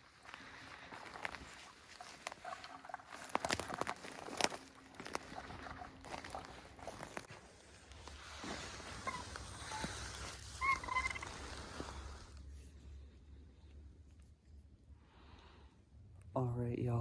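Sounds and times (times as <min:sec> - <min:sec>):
footsteps crunching dry leaves: 0:00.0 - 0:12.0.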